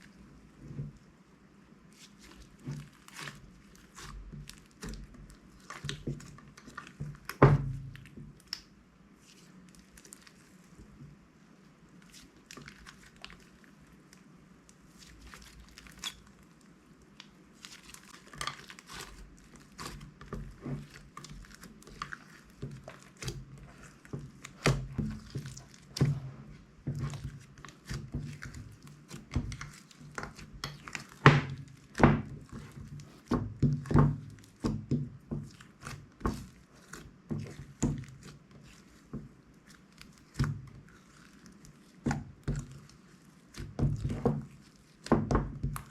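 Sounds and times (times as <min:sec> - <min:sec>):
slime squished by hand: 0:12.0 - 0:45.9.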